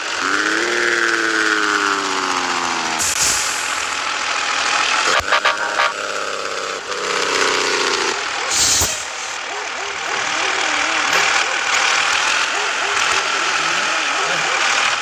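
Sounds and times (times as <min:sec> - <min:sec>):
truck engine and road noise: 0:00.0 - 0:15.0
short hiss: 0:08.5 - 0:09.2.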